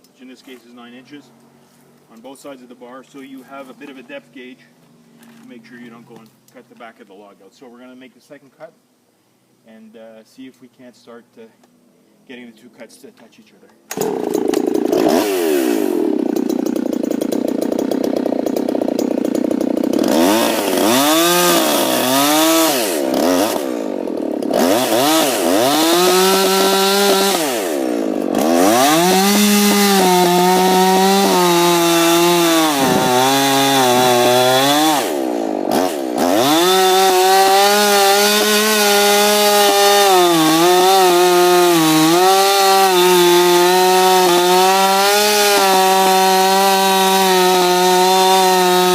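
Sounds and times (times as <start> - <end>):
chainsaw cutting into log: 13.9 - 48.9.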